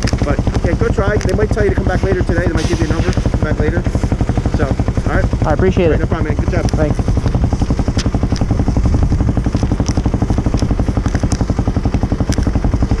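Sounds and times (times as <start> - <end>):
sharp clicks: 0.0 - 1.5, 6.6 - 12.7
motorcycle engine running: 0.0 - 13.0.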